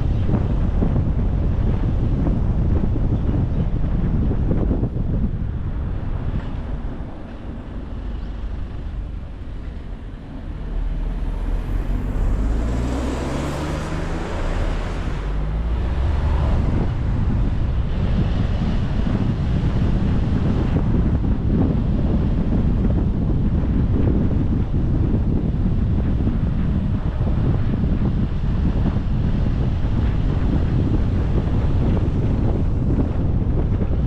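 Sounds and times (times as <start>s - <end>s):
road and wind noise: 0.0s - 34.0s
car engine accelerating: 8.1s - 22.2s.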